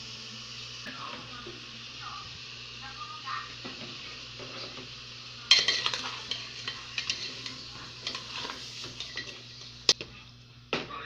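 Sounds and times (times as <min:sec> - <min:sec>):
chicken sizzling in oil: 0:00.0 - 0:10.0
utensil clatter: 0:03.6 - 0:10.0
utensil scraping a pan: 0:04.4 - 0:10.0.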